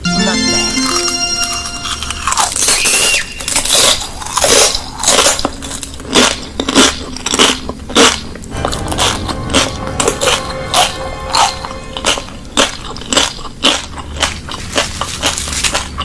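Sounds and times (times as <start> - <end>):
person chewing crunchy food: 3.5 - 8.3.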